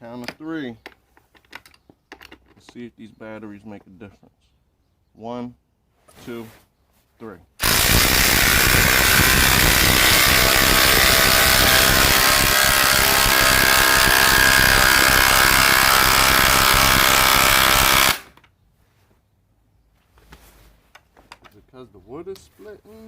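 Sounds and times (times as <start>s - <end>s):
impact drivers hammering screws: 7.6s - 18.4s.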